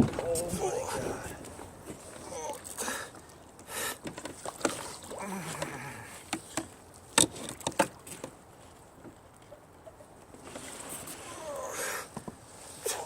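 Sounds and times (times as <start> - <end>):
water splashing: 0.0 - 8.4
knocks and clicks on kayak: 6.3 - 8.4.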